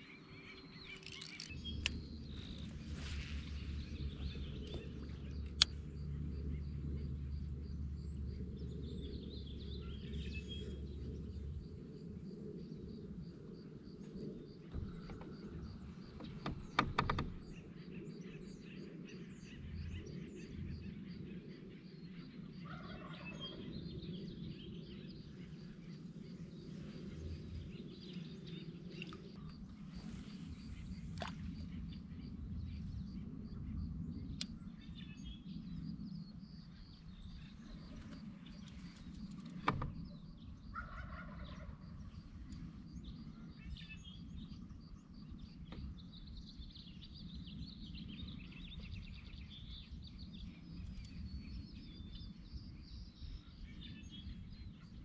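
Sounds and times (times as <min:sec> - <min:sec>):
birds calling: 0:00.0 - 0:11.4.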